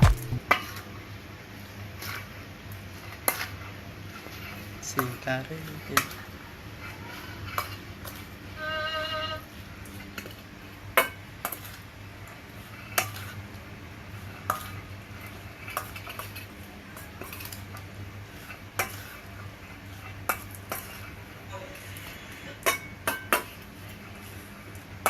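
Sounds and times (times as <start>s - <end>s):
steady low hum: 0.0s - 0.6s.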